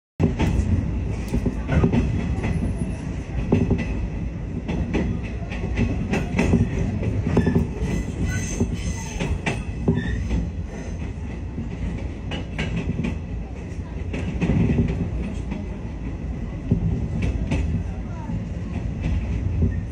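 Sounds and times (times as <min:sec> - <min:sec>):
wheels clacking over rail joints: 0:00.2 - 0:18.0
train rumbling: 0:00.2 - 0:19.9
faint high wheel squeals: 0:07.3 - 0:10.4.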